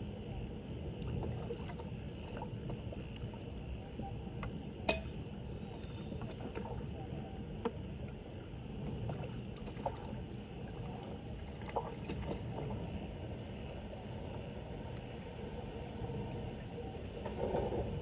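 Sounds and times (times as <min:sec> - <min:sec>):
floodwater sloshing and splashing: 0:00.8 - 0:04.0, 0:05.5 - 0:14.3.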